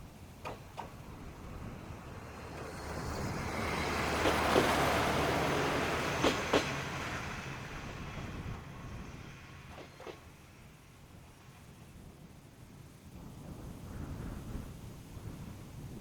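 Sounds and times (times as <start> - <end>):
diesel railcar passing: 0.0 - 14.1
wheels clicking over rail joints: 0.2 - 7.4, 9.6 - 10.3.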